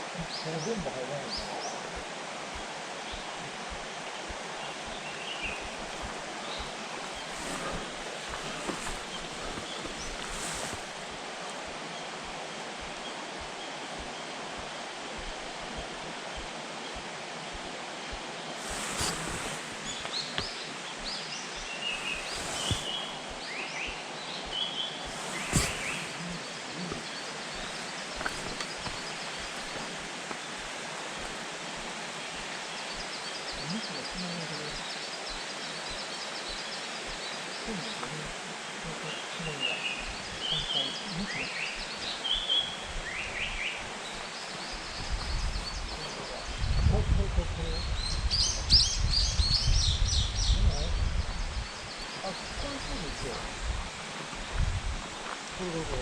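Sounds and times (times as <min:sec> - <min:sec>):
songbirds chirping: 0:00.0 - 0:56.0
steady background hiss: 0:00.0 - 0:56.0
faint high twittering: 0:18.6 - 0:31.4.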